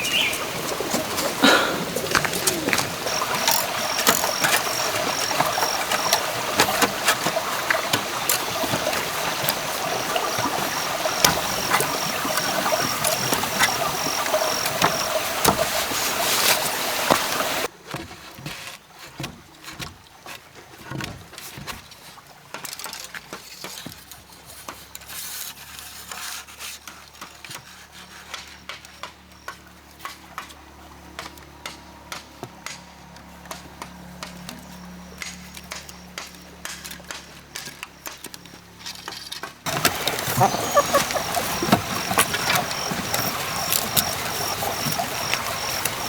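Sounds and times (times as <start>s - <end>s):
running water: 0.0s - 27.2s, 36.6s - 46.0s.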